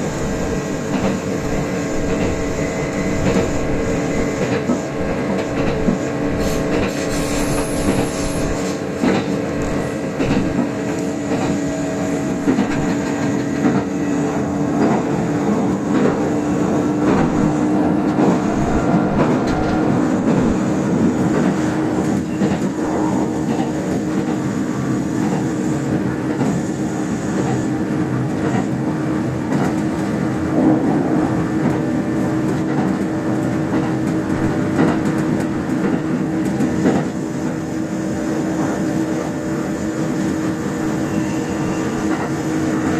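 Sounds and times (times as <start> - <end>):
train motor hum: 0.0 - 24.5
train wheels rumbling on rail: 0.0 - 42.9.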